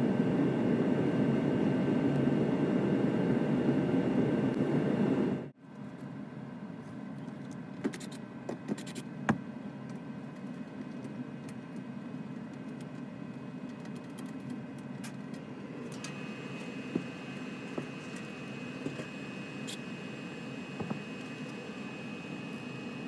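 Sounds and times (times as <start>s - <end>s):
furnace blower humming: 0.0s - 5.6s, 15.4s - 23.0s.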